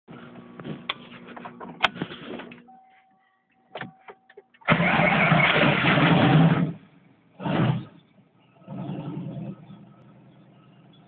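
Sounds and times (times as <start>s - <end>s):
car engine revving: 4.7s - 11.0s.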